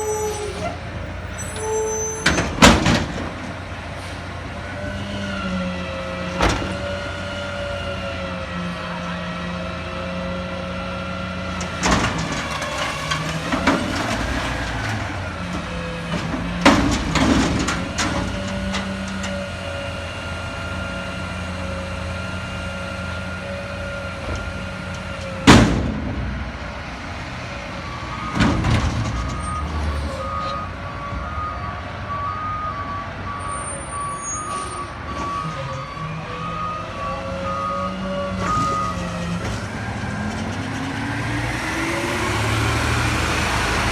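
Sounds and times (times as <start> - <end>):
dumpster banging: 0.0 - 3.8, 11.6 - 19.3, 24.4 - 26.7, 28.1 - 30.0
garbage truck engine revving: 0.0 - 33.4, 35.0 - 43.9.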